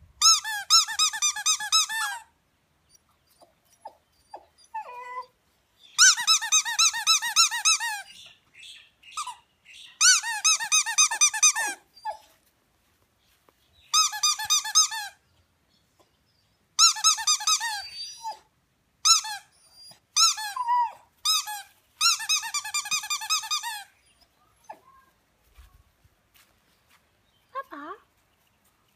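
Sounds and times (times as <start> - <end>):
squeaky toy squeaking: 0.2 - 2.3, 6.0 - 8.1, 9.2 - 9.4, 10.0 - 12.2, 13.9 - 15.2, 16.8 - 18.4, 19.0 - 24.0
dog crying: 3.4 - 5.4, 16.8 - 25.2.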